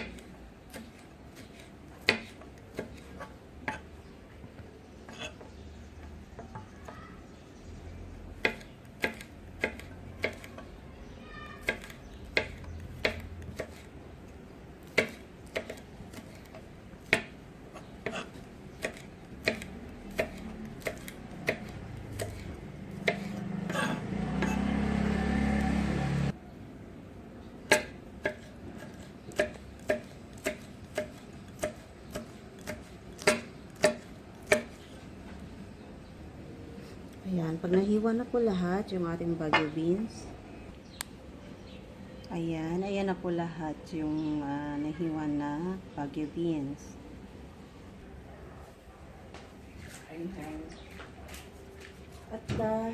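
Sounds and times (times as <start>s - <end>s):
knife chopping on cutting board: 0.0s - 3.8s, 8.4s - 10.5s, 11.6s - 13.9s, 14.9s - 17.4s, 18.0s - 22.4s, 23.0s - 24.6s, 27.7s - 34.8s.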